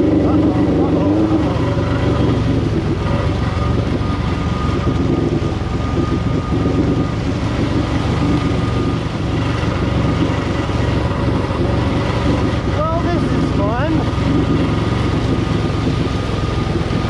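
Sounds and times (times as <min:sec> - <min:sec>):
jet ski engine running: 0:00.0 - 0:17.0
wind buffeting microphone: 0:00.0 - 0:17.0.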